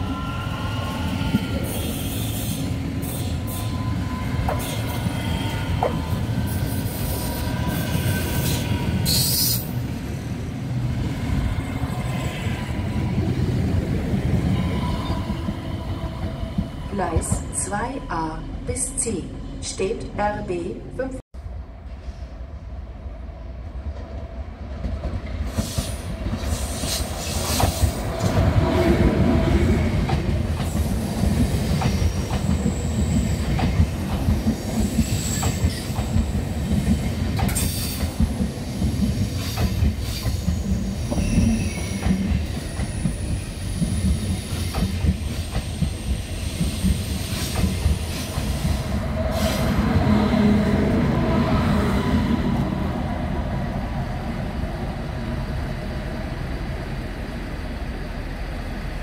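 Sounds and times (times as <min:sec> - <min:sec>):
train wheels rumbling over rails: 0:23.4 - 0:59.0.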